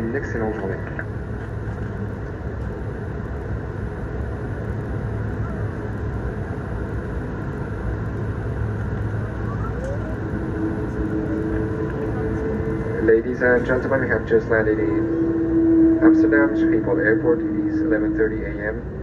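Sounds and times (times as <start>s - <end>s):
airplane cabin rumble: 0.0s - 19.0s
faint steady hum: 0.0s - 19.0s.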